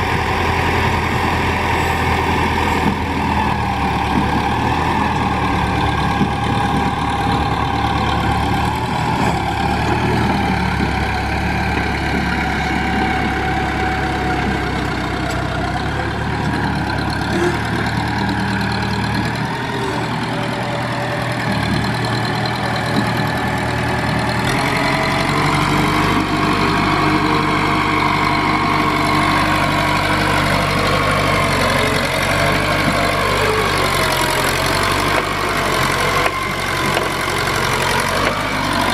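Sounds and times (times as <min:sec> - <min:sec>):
backhoe engine running: 0:00.0 - 0:38.9.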